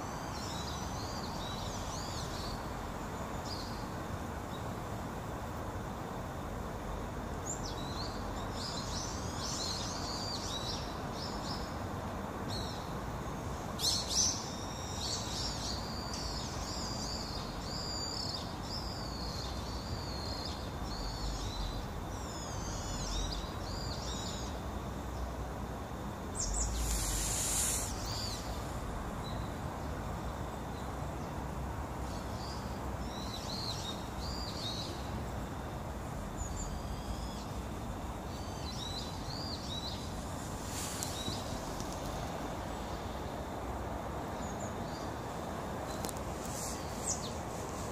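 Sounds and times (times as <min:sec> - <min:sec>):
steady background hiss: 0:00.0 - 0:47.9
small birds chirping: 0:12.5 - 0:25.4, 0:26.2 - 0:43.5, 0:44.3 - 0:47.9
rush of noise: 0:26.4 - 0:29.9.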